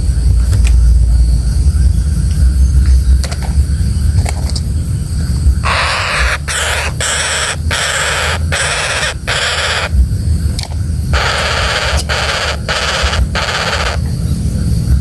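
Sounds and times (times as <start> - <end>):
woodpecker rasping calls: 5.6 - 10.0, 11.1 - 14.1.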